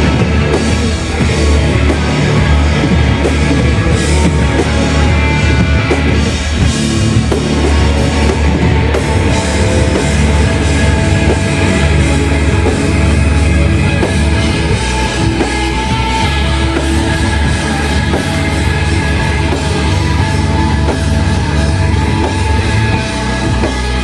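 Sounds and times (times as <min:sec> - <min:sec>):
distorted guitars: 0:00.0 - 0:24.0
drum kit and bass: 0:00.0 - 0:24.0.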